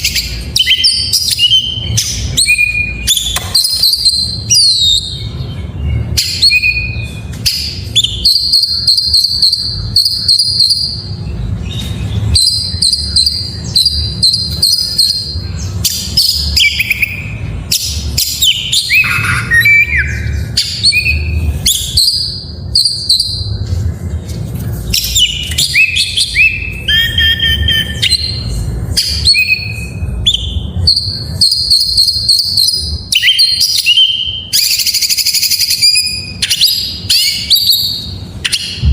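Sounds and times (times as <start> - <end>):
steady low rumble: 0.0 - 31.6, 37.8 - 38.9
bird singing whistled phrases: 0.1 - 5.5, 25.0 - 38.9.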